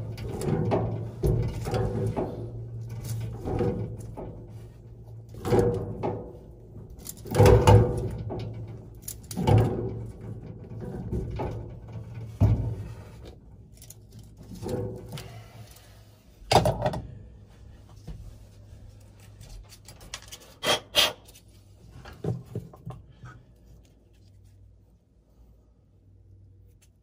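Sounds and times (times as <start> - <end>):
metal clunks and knocks: 0.0 - 13.6, 16.5 - 17.2, 22.0 - 23.4.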